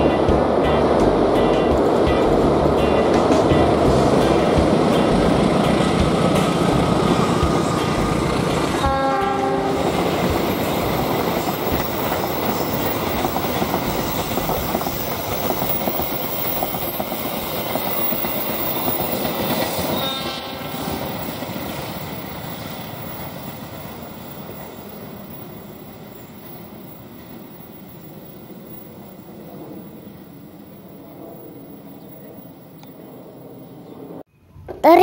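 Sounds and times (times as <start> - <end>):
train wheels clattering on rails: 0.1 - 29.8
train horn blast: 8.7 - 9.9, 19.8 - 21.1.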